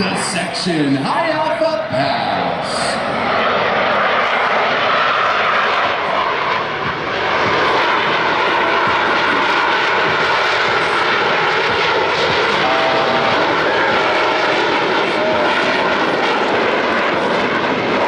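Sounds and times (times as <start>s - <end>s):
jet engine noise: 0.0s - 18.0s.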